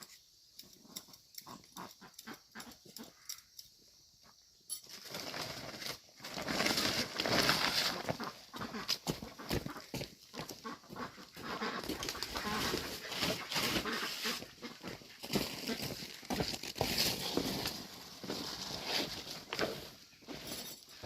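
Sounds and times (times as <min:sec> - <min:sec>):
farm animals: 0:00.0 - 0:03.5, 0:07.7 - 0:16.3.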